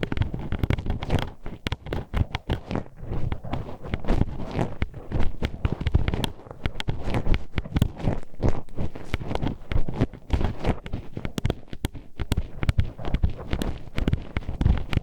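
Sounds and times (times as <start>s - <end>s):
hairpin clicking and tapping: 0.0s - 2.7s, 10.4s - 15.0s.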